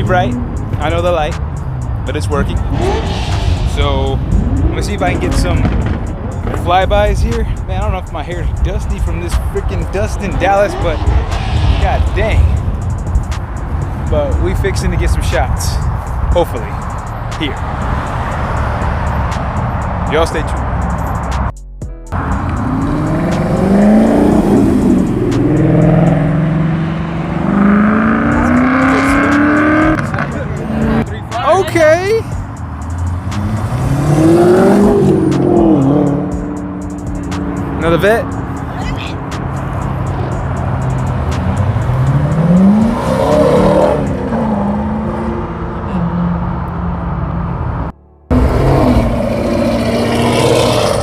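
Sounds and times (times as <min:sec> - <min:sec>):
car engines accelerating: 0:00.0 - 0:21.5, 0:22.1 - 0:51.0.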